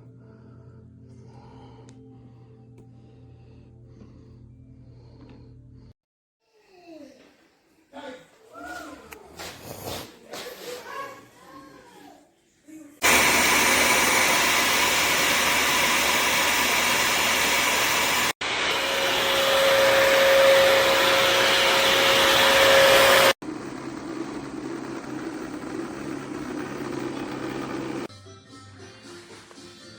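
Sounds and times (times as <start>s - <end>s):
floor cleaner vacuum motor whine: 13.0s - 28.1s.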